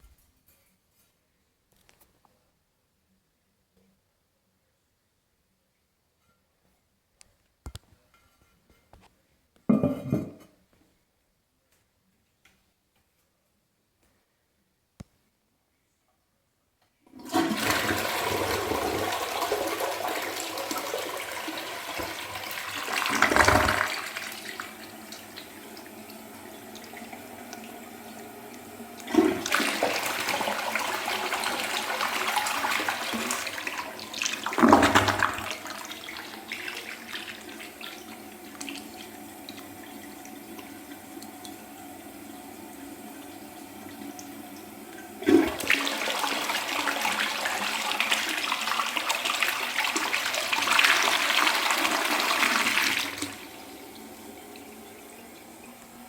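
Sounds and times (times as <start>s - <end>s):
toilet flushing: 17.1s - 56.0s
water running as tank refills: 17.1s - 56.0s.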